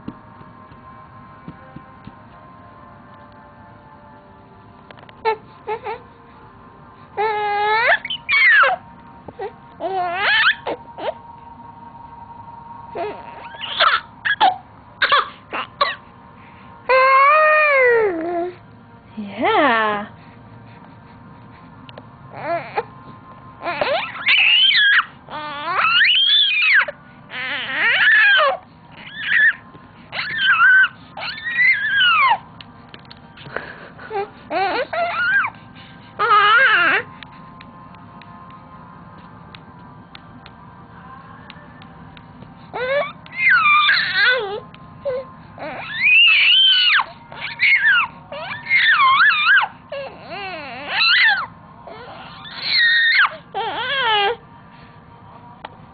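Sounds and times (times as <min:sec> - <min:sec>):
baby squealing: 0:07.2 - 0:08.8, 0:09.8 - 0:11.2, 0:13.0 - 0:16.0, 0:23.6 - 0:32.4, 0:34.5 - 0:35.5, 0:42.8 - 0:44.6, 0:45.6 - 0:54.4.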